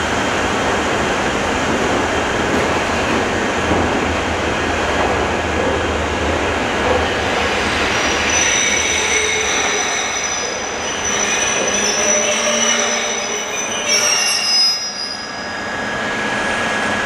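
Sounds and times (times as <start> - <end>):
train wheels rumbling on rail: 0.0 - 17.0
high-pitched wheel squeal: 8.2 - 16.4.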